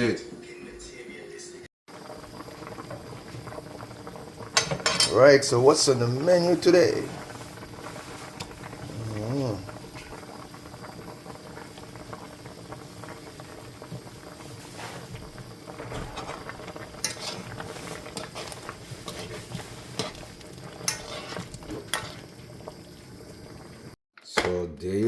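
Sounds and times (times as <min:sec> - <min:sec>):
food sizzling in a pot: 0:01.9 - 0:24.0
spoon scraping a pot: 0:15.9 - 0:22.3.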